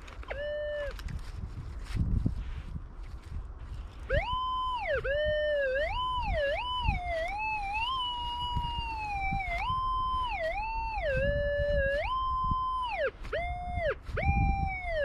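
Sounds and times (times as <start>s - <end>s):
metal detector tone wavering: 0.2s - 1.0s, 4.1s - 15.0s.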